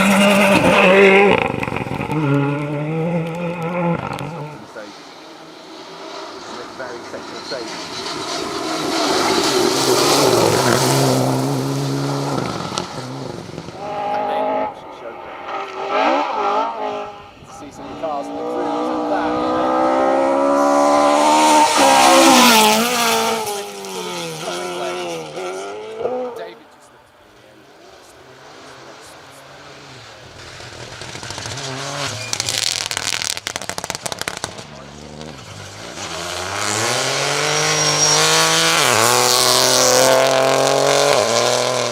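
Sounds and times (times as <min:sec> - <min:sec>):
rally car passing at high revs: 0:00.0 - 0:41.9.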